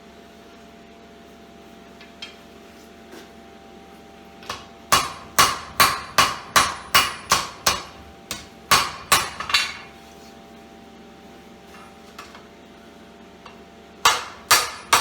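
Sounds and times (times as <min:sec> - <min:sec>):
hammer ringing on anvil: 0:04.5 - 0:09.9, 0:14.0 - 0:15.0.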